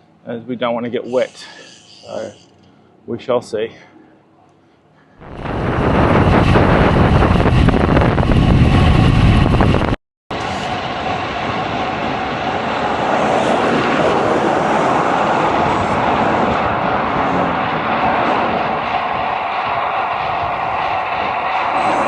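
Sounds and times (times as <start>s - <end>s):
wind buffeting microphone: 5.2s - 22.0s.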